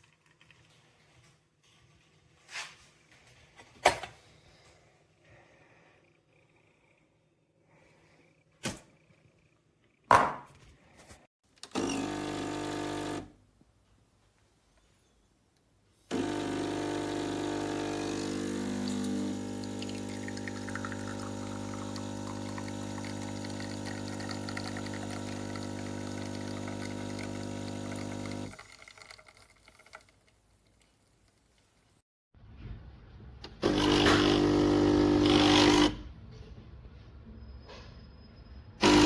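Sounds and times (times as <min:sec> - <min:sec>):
espresso machine pump humming: 0:11.8 - 0:13.3, 0:16.1 - 0:28.6, 0:33.6 - 0:36.0.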